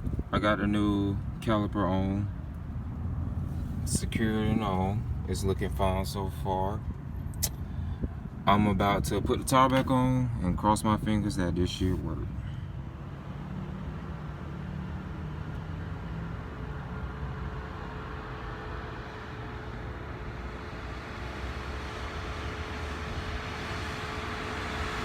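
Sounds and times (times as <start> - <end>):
car engine: 0.0 - 25.0
road noise: 0.0 - 25.0.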